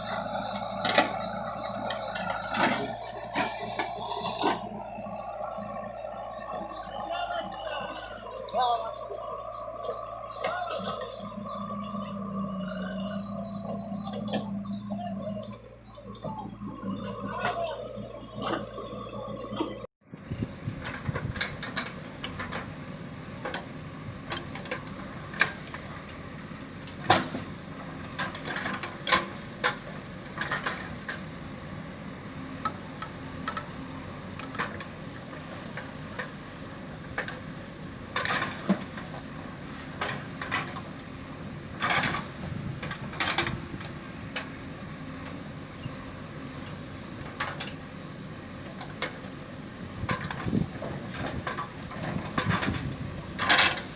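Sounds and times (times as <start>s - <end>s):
heavy machinery running: 0.0s - 53.9s
clanks and knocks: 50.0s - 53.9s.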